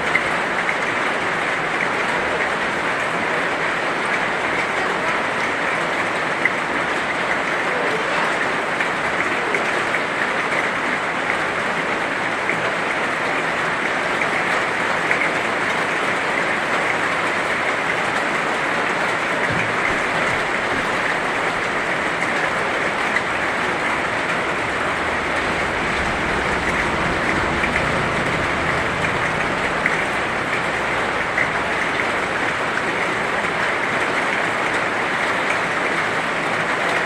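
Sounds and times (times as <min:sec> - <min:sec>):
heavy rain hiss: 0:00.0 - 0:37.0
raindrop ticks: 0:12.3 - 0:37.0.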